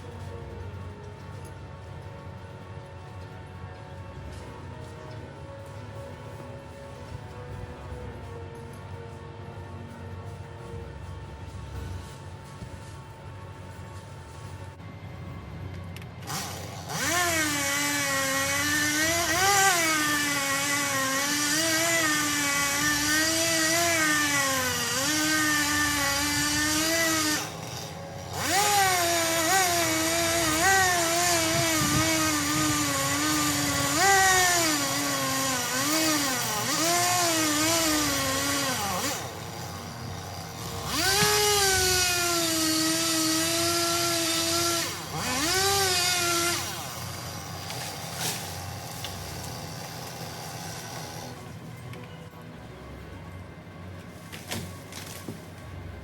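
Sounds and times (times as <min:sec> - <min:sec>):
chainsaw cutting wood: 0:16.2 - 0:51.5.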